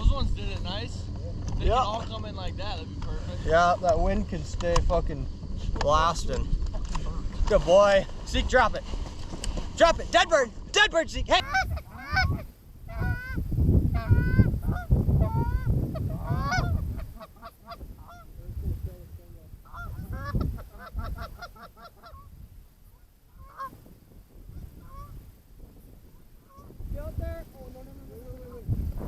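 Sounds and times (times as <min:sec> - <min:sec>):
wind buffeting microphone: 0:00.0 - 0:29.0
geese honking: 0:11.3 - 0:18.4, 0:19.6 - 0:23.8, 0:24.4 - 0:25.2, 0:26.4 - 0:26.8
goose clucks: 0:11.4 - 0:18.3, 0:19.6 - 0:23.8, 0:24.5 - 0:25.2, 0:26.4 - 0:26.8.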